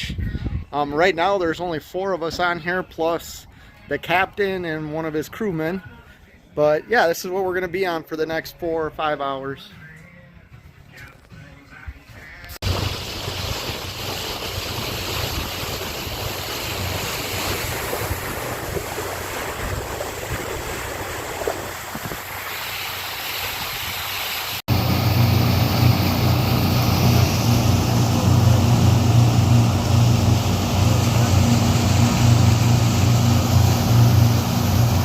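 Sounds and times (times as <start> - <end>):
wind buffeting microphone: 0.0 - 0.8, 12.6 - 22.6
boat engine hum: 12.6 - 35.0
water rushing past boat: 12.6 - 35.0.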